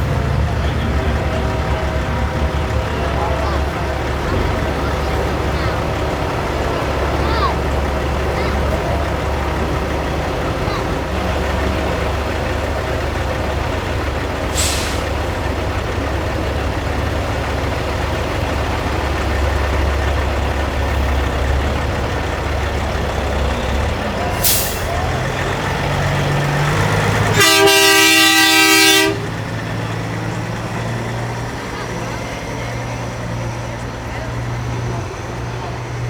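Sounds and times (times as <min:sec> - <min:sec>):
diesel truck engines rumbling: 0:00.0 - 0:36.0
multi-tone air horn blast: 0:27.3 - 0:29.4.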